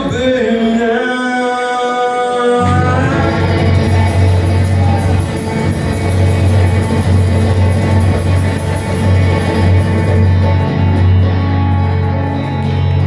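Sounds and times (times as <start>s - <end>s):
guitar: 0.0s - 13.0s
upright bass line: 2.6s - 13.0s
drums with cymbal beat: 2.7s - 11.1s.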